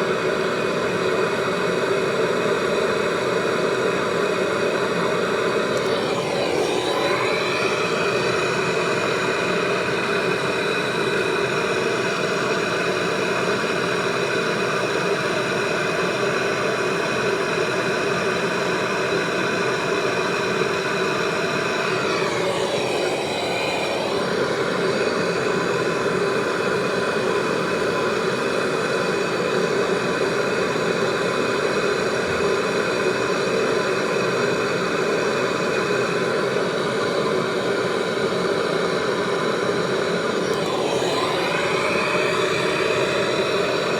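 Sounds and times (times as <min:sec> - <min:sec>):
machine motor humming: 0:05.2 - 0:10.0, 0:21.9 - 0:25.2, 0:40.3 - 0:43.9.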